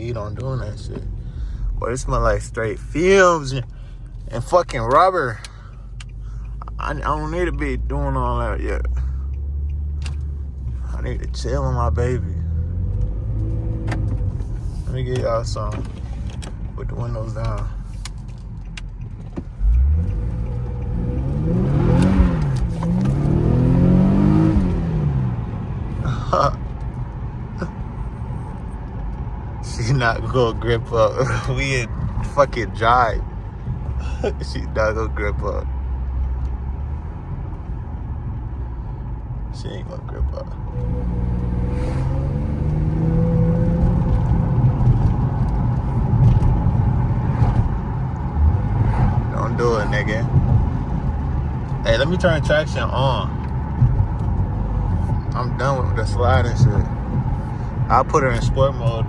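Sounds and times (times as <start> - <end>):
car engine revving: 0.0 - 59.0
car engine revving hard: 19.6 - 26.4, 40.7 - 59.0.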